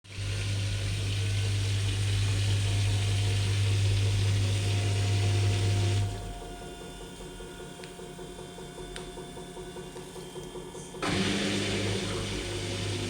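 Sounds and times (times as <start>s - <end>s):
water rushing in washer: 0.0s - 6.4s, 11.0s - 13.0s
washer-dryer low hum: 0.0s - 13.0s.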